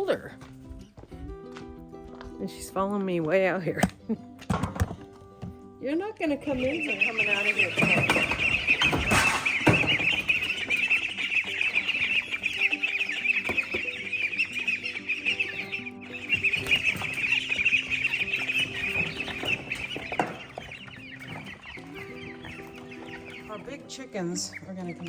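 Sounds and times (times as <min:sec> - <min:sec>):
background music with held notes: 0:00.0 - 0:25.0
chickens clucking: 0:05.8 - 0:25.0.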